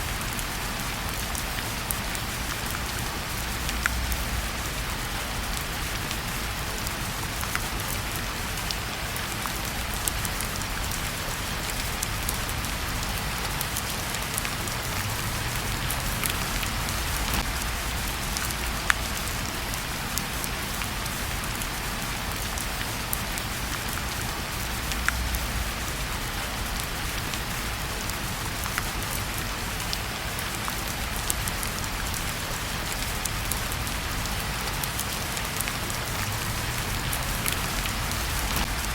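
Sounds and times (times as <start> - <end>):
rain falling: 0.0 - 38.9
wood fire crackling and popping: 14.6 - 19.0.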